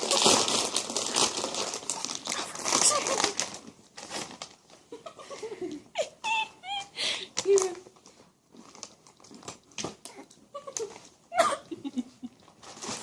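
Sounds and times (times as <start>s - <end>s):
snack packaging crinkling: 0.0s - 5.0s, 7.3s - 11.3s, 12.4s - 13.0s.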